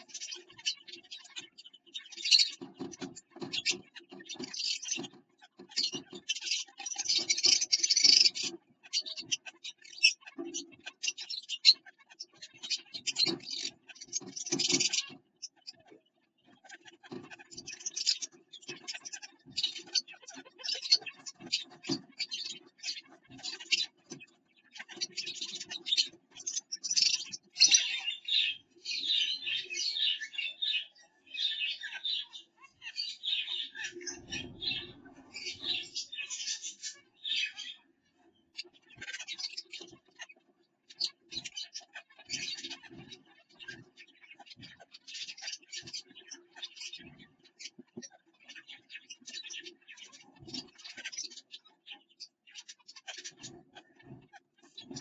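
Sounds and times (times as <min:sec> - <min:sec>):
finch twittering: 0:00.0 - 0:55.0.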